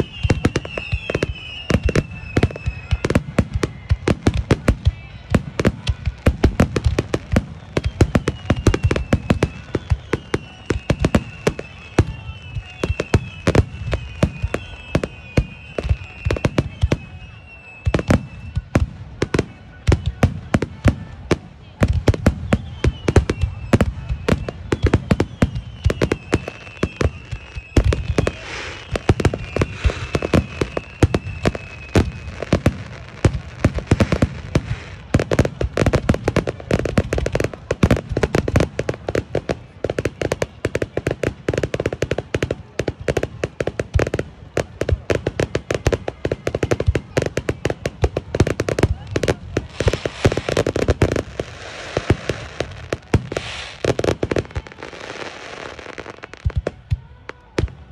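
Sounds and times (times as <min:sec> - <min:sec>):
thin wavering whistle: 0:00.0 - 0:03.1, 0:07.6 - 0:18.7, 0:22.4 - 0:33.4
fireworks bursting and crackling: 0:00.0 - 0:57.9.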